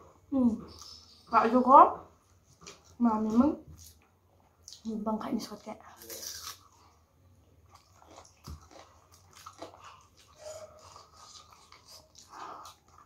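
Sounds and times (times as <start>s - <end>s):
person chewing food: 2.2s - 3.0s, 5.9s - 13.0s.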